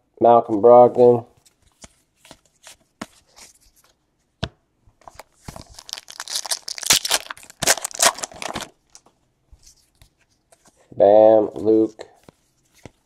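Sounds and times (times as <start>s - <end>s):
card pack wrapper tearing: 5.6s - 8.8s.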